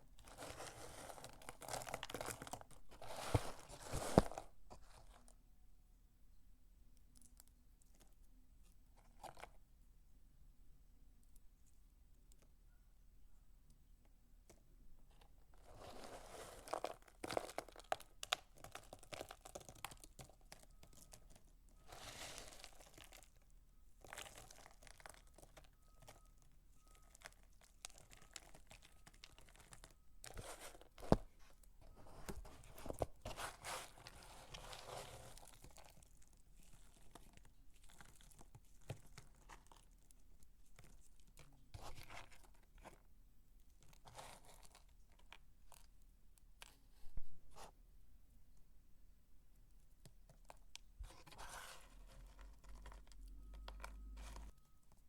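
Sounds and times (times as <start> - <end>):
dry soap crunching by hand: 0.0 - 5.4, 15.2 - 46.8.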